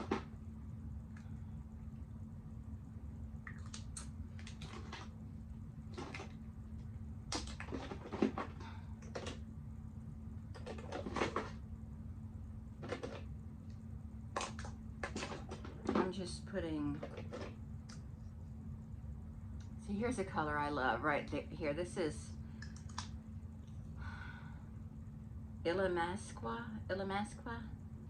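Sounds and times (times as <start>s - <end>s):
steady low hum: 0.0s - 28.0s
plastic cosmetics clicking and clattering: 7.3s - 9.4s, 12.8s - 13.3s, 14.4s - 16.1s, 17.0s - 17.6s.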